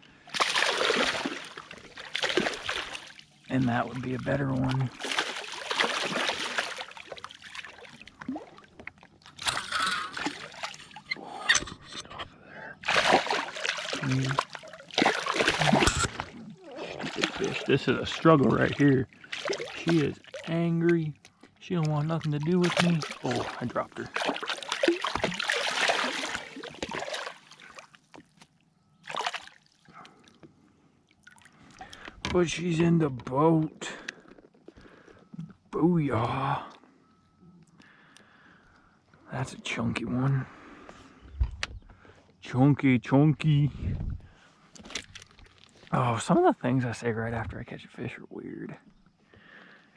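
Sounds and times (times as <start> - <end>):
water splashing and sloshing: 0.0 - 36.7, 44.0 - 46.0.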